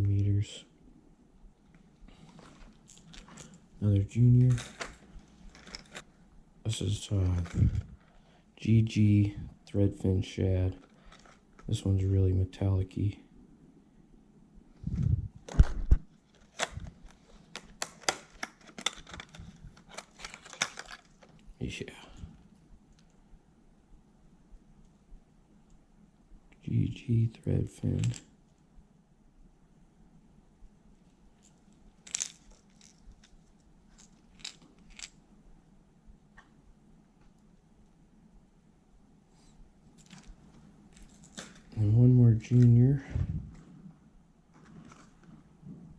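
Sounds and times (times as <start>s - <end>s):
plastic packaging clicks and crackles: 1.7s - 3.6s, 4.4s - 6.1s, 10.7s - 11.8s, 15.5s - 21.5s, 31.4s - 35.2s, 40.0s - 41.8s.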